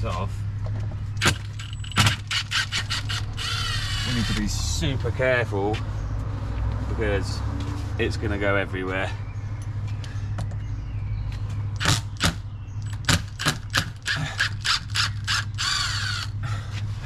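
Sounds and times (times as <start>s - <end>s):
sharp clicks and knocks: 0.6s - 3.2s, 11.8s - 15.6s
steady low hum: 8.0s - 17.0s.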